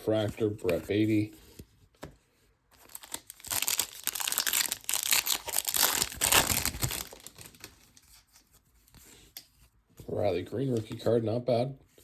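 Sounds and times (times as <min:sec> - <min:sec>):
plastic wrapper crinkling and tearing: 0:02.7 - 0:08.4.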